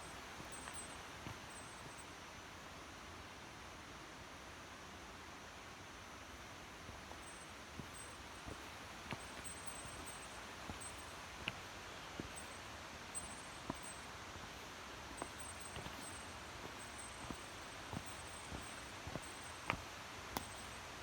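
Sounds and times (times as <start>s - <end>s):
stream running over rocks: 0.0s - 21.0s.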